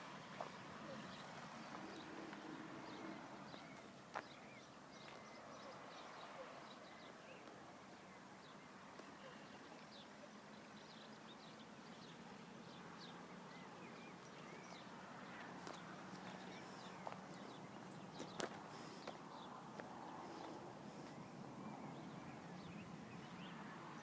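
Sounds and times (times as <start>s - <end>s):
small birds chirping: 0.2s - 24.0s.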